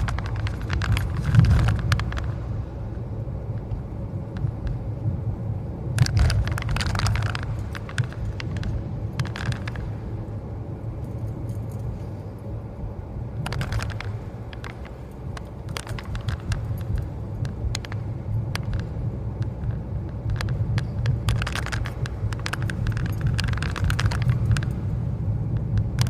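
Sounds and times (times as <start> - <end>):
car cabin road rumble: 0.0 - 26.0
clicking or rattling: 13.4 - 24.9.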